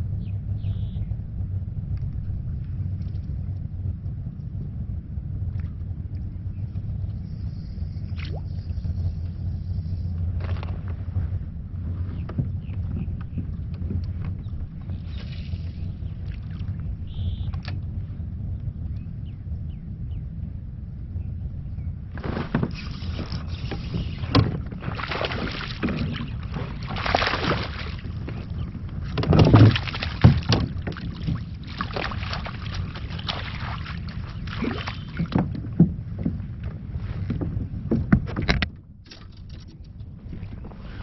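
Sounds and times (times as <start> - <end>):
wind rumbling on microphone: 0.0 - 41.0
water splashing around kayak: 8.1 - 17.8, 22.1 - 41.0.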